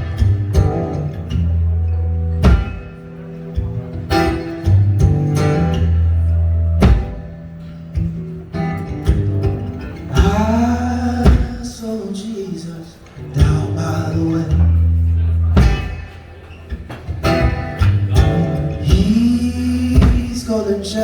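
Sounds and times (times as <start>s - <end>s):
deep sustained bass notes: 0.0s - 11.3s
keyboard chords: 0.0s - 11.6s
guitar: 0.0s - 21.0s
hard drum hits: 6.8s - 7.4s, 11.2s - 11.8s, 15.6s - 16.1s.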